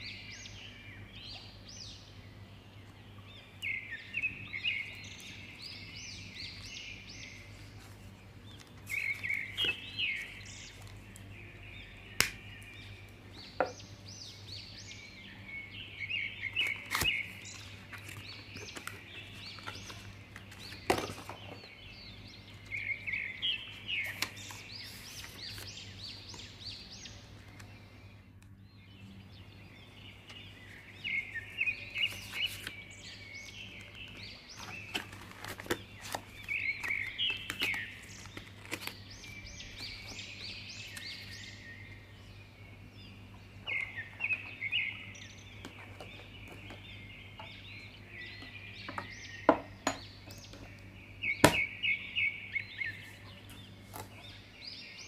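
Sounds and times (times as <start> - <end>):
paper cards clicking and tapping: 33.4 - 39.0.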